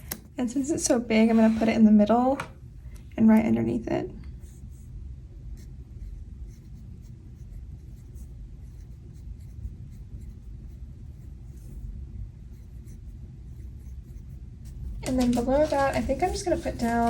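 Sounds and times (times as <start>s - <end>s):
paper stickers rustling: 15.0s - 17.0s.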